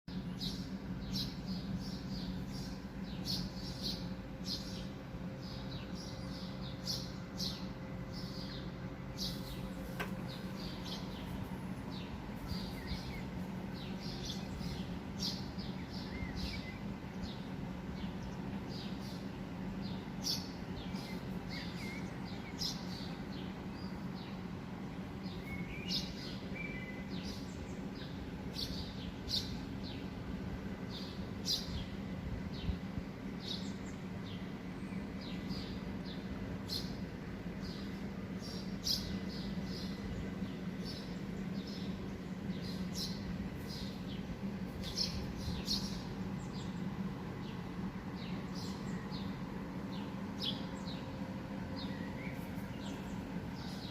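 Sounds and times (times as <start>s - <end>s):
small birds chirping: 0.1s - 53.9s
steady low rumble: 0.1s - 53.9s.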